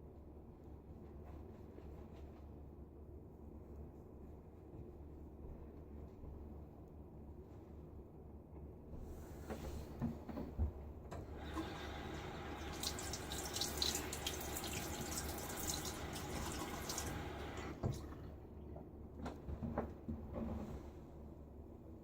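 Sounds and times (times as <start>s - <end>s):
tap water running into sink: 11.4s - 18.1s.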